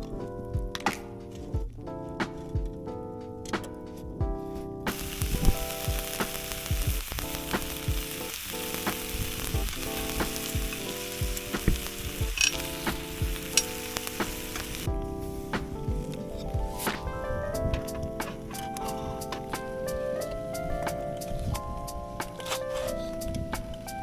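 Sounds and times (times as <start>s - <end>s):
background music: 0.0s - 24.0s
food sizzling in a hot pan: 4.9s - 15.4s.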